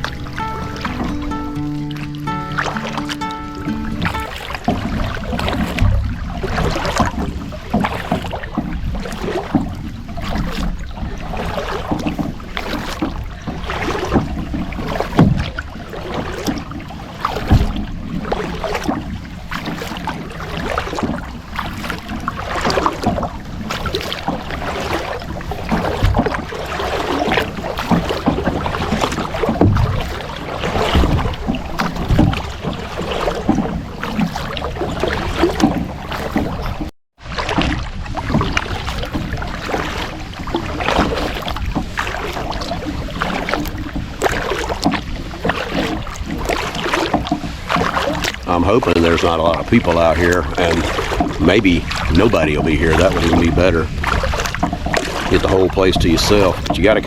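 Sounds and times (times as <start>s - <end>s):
paddle splashing through water: 0.0s - 57.0s
sharp paddle knocks: 27.3s - 32.5s.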